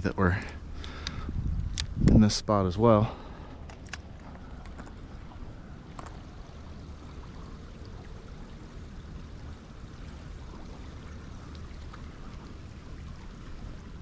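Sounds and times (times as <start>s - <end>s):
faint ticks: 0.4s - 2.2s.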